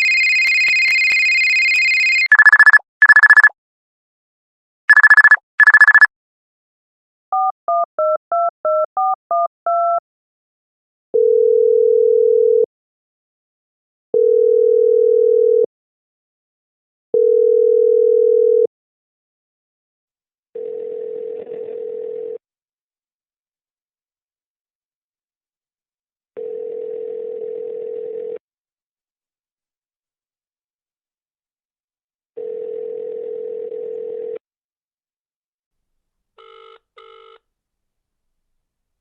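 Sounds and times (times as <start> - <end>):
long steady call tones: 0.0 - 3.5, 4.9 - 6.1, 36.4 - 37.4
telephone keypad beeps: 0.0 - 3.5, 4.9 - 6.1.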